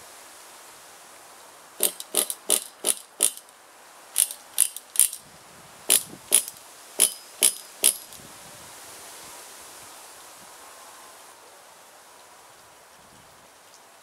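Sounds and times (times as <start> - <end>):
engine pull-starter rattling: 1.8 - 3.5, 4.2 - 5.2, 5.9 - 8.2.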